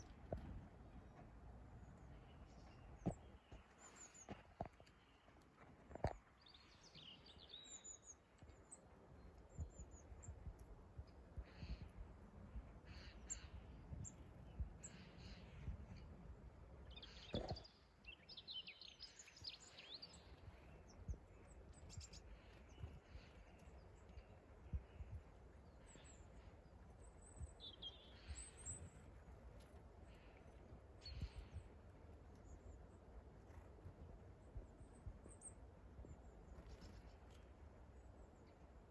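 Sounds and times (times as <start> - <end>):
woodland birds calling: 11.4 - 12.0, 12.6 - 15.6, 16.9 - 32.8.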